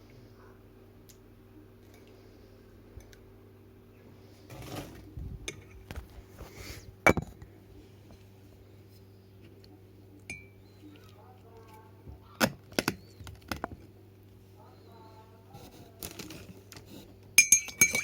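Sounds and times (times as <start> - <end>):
steady low hum: 0.0 - 18.0
short ringing clink: 17.4 - 18.0.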